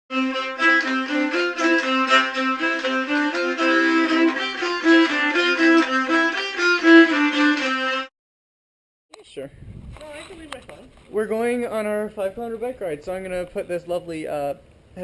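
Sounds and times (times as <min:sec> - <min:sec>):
fiddle drone note: 0:00.1 - 0:08.1
fiddle tune: 0:00.1 - 0:08.1.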